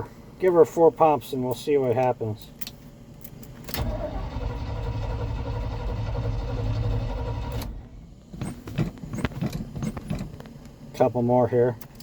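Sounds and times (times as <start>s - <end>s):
starter cranking engine: 3.8s - 7.8s.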